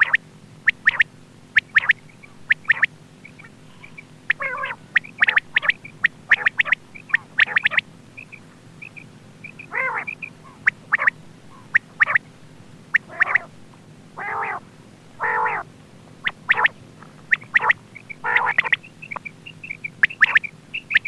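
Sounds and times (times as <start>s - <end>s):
quail calling: 0.0s - 12.3s, 12.9s - 21.0s
soft chirps: 0.0s - 13.6s, 15.3s - 21.0s
steady low hum: 0.0s - 21.0s.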